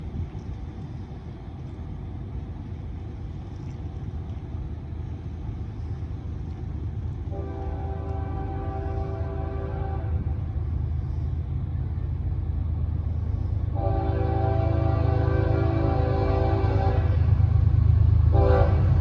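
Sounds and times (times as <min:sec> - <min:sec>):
diesel locomotive rumble: 0:00.0 - 0:19.0
locomotive horn chord: 0:07.3 - 0:10.4, 0:13.7 - 0:17.3, 0:18.3 - 0:19.0.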